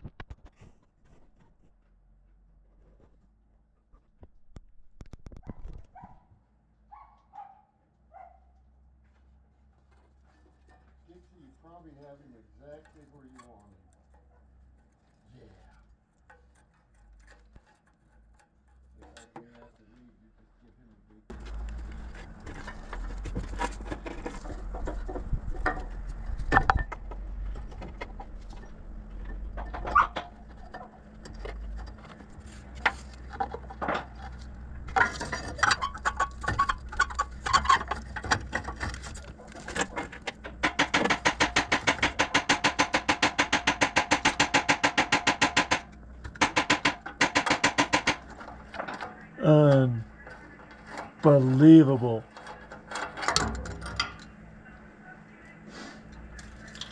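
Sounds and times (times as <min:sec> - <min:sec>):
hand tools clanking on metal: 0:10.3 - 0:15.0, 0:15.7 - 0:19.9, 0:27.7 - 0:54.4, 0:56.1 - 0:56.9.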